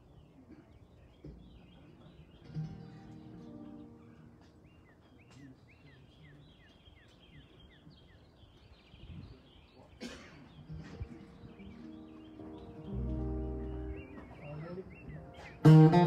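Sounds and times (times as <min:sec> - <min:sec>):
small bird chirping: 0:10.6 - 0:15.7.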